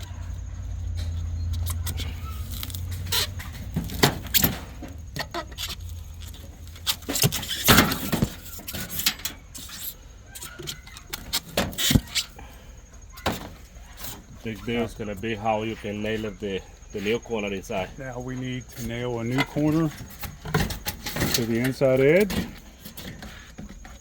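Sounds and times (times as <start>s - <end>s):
low steady rumble: 0.0s - 10.3s.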